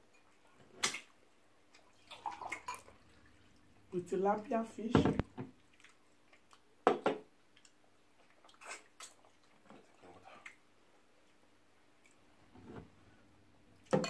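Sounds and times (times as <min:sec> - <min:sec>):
wet mouth smacks and chewing: 0:05.7 - 0:06.7, 0:07.5 - 0:09.6.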